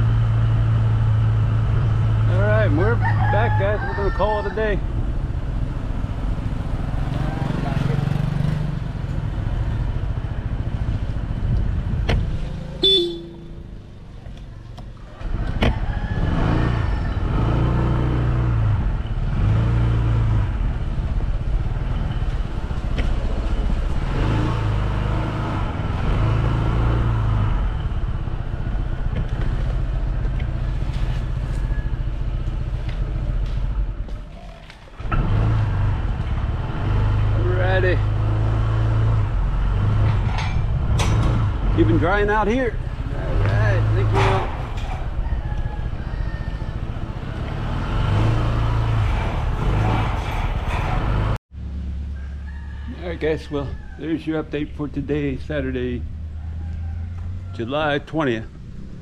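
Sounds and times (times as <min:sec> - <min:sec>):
vehicle engine running: 0:00.0 - 0:03.0, 0:04.6 - 0:53.4
short horn toot: 0:12.8 - 0:13.7.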